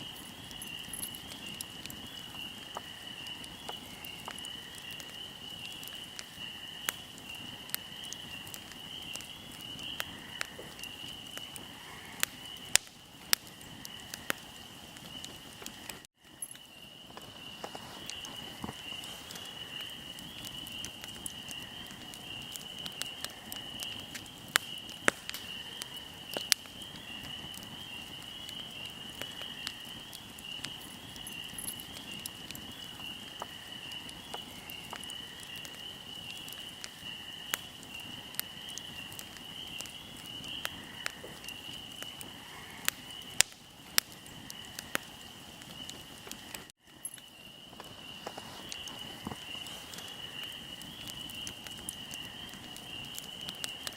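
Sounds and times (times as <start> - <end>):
crickets chirping: 0.0 - 53.9
fire crackling and popping: 0.0 - 53.9.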